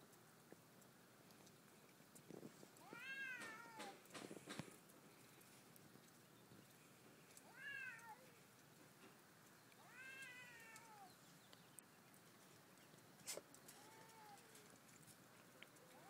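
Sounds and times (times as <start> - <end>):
cat yowling: 2.8 - 4.0, 7.5 - 8.3, 9.8 - 11.1.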